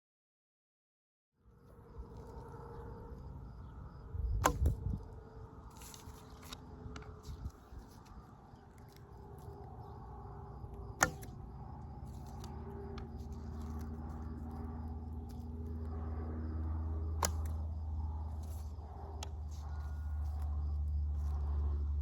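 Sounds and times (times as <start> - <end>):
sharp cracks: 10.5 - 14.7, 16.6 - 20.6.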